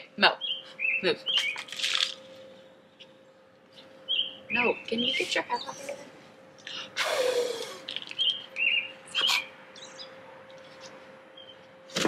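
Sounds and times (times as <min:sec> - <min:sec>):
faint steady hum: 0:00.0 - 0:12.0
small birds chirping: 0:00.3 - 0:01.7, 0:03.3 - 0:06.9, 0:07.8 - 0:11.7.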